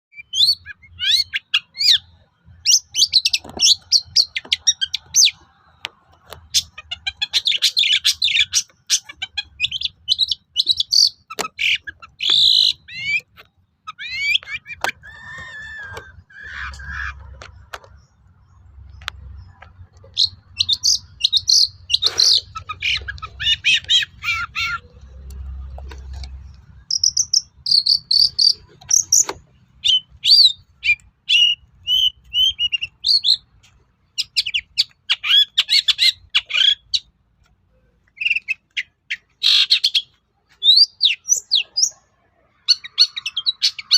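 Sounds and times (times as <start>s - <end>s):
bird singing chirps and whistles: 0.1s - 5.4s, 6.6s - 17.1s, 20.1s - 24.8s, 26.9s - 33.4s, 38.2s - 42.0s.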